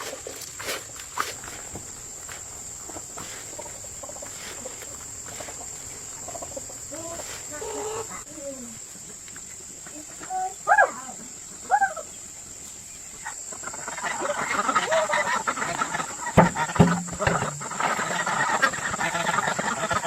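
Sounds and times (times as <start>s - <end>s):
insects droning high-pitched: 0.0s - 20.0s.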